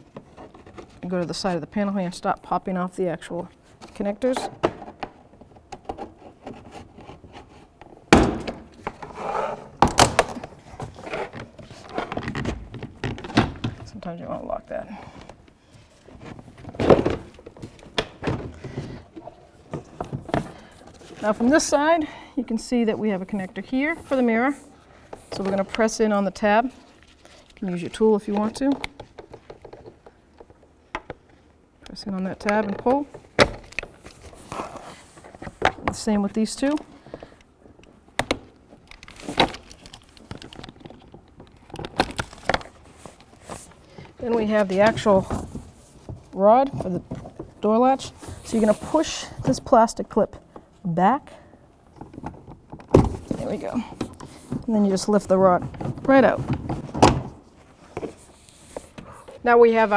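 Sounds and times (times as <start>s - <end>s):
plastic trim panel thunk: 8.2s - 8.7s
handling rustle: 38.6s - 49.7s.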